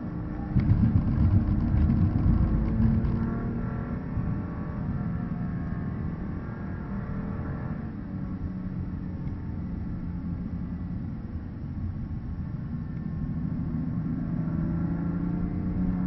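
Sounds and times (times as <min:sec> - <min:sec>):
car engine accelerating: 0:00.0 - 0:09.1
tyre and road rumble: 0:00.4 - 0:05.0.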